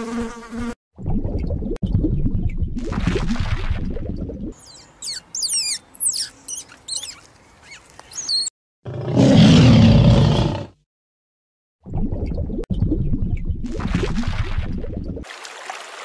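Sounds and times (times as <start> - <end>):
small birds chirping: 4.6 - 8.5
lion roaring: 8.9 - 10.8.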